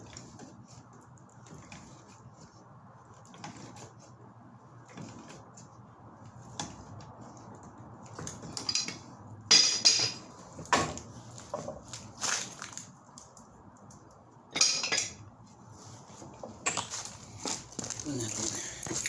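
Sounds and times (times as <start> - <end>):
metal tools clinking: 16.7 - 19.0.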